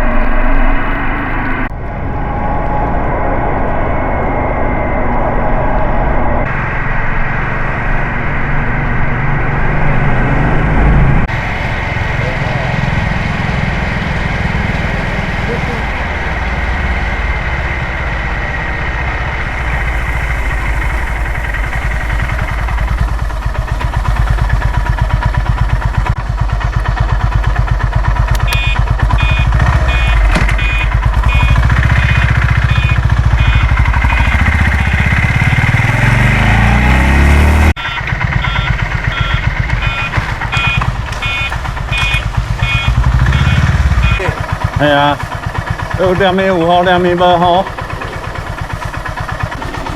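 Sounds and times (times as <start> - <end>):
motorcycle engine revving: 6.2 - 49.9
electronic beeping: 19.4 - 24.7, 28.4 - 37.0, 37.8 - 49.9.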